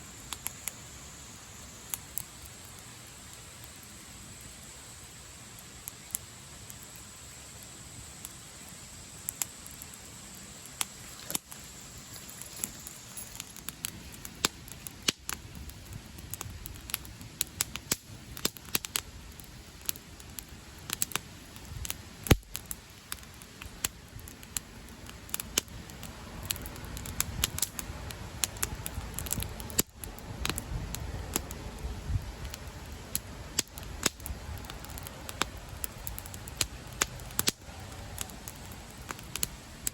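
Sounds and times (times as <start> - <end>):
campfire crackling and popping: 0.0 - 39.9
low background noise: 0.0 - 39.9.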